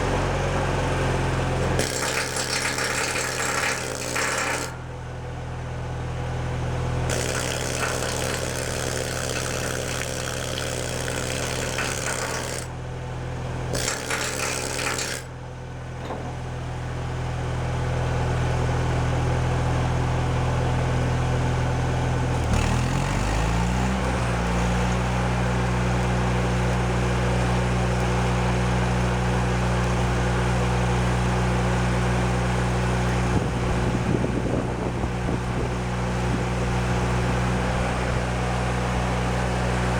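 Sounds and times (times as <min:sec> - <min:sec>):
welder generator engine running: 0:00.0 - 0:39.9
arc welding crackle and hiss: 0:07.1 - 0:12.6.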